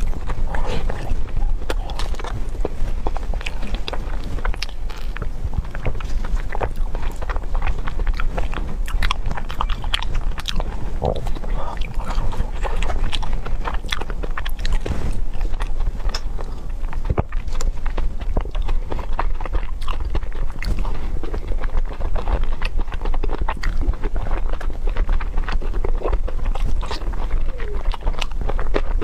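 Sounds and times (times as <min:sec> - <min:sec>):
low steady hum: 0:00.0 - 0:29.0
person chewing and biting: 0:00.0 - 0:29.0.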